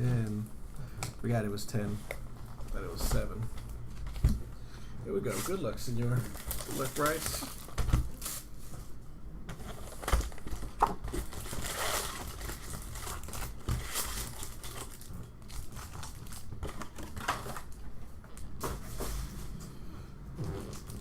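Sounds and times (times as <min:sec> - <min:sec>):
foil wrappers crinkling and tearing: 0:05.2 - 0:08.6, 0:09.6 - 0:18.5.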